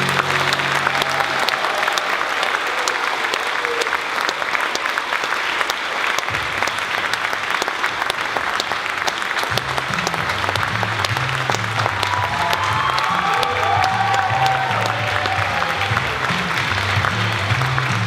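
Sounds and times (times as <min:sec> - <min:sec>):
bass line music: 0:00.0 - 0:01.4, 0:09.4 - 0:18.0
audience applauding: 0:00.0 - 0:18.0.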